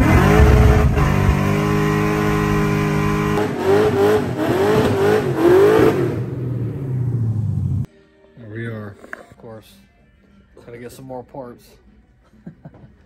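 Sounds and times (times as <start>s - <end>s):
car engine revving: 0.0s - 7.9s.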